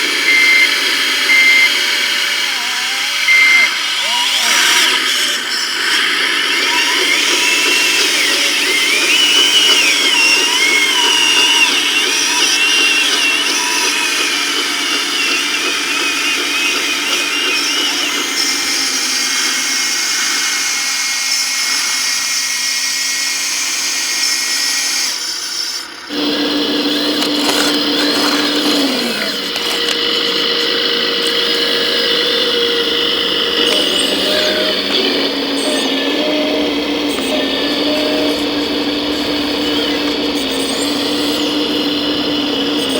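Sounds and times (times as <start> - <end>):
small electric motors whining: 0.0 - 42.9.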